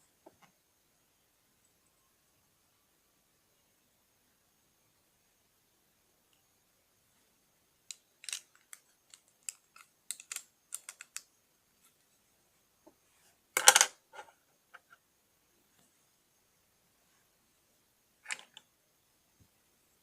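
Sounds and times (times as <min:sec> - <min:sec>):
plastic bricks clicking: 0:07.9 - 0:11.3, 0:13.6 - 0:14.0
plastic bricks clattering: 0:08.2 - 0:11.2, 0:13.6 - 0:14.0.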